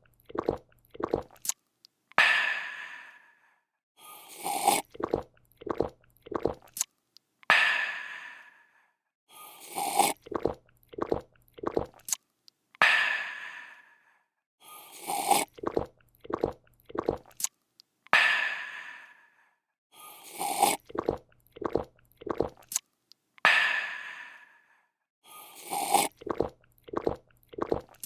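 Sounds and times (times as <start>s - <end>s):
person gulping: 0.0s - 1.4s, 4.4s - 6.8s, 9.8s - 12.1s, 15.1s - 17.4s, 20.4s - 22.8s, 25.6s - 28.0s
person slurping: 0.0s - 1.5s, 4.1s - 6.8s, 9.4s - 12.2s, 14.7s - 17.5s, 20.0s - 22.8s, 25.3s - 28.0s.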